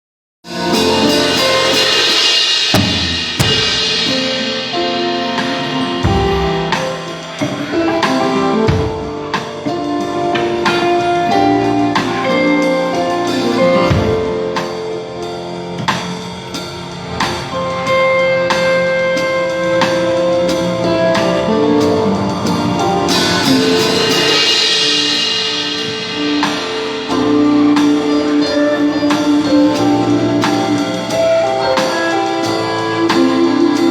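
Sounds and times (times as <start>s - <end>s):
drum kit: 0.4s - 33.9s
cymbal wash: 0.5s - 10.3s, 19.2s - 33.9s
held chords: 0.5s - 33.9s.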